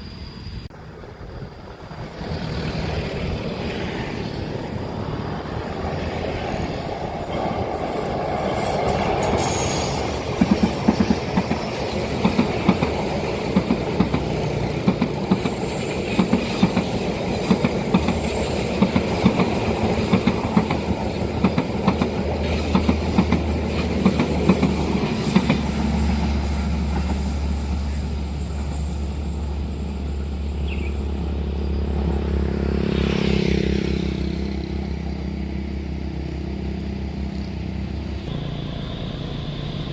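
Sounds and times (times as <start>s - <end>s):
train rumble: 0.0s - 39.9s
train wheels clacking: 1.9s - 31.3s.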